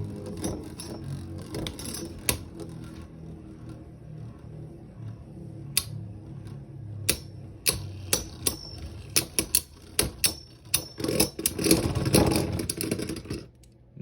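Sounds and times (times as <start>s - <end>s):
spinning tops humming: 0.0s - 13.6s
spinning tops clashing clicks: 7.1s - 11.8s.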